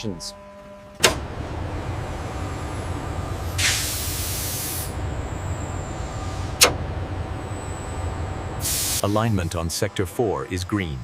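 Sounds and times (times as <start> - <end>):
low machine hum: 0.0 - 8.7
hissing release of air: 3.6 - 5.0, 8.6 - 9.5.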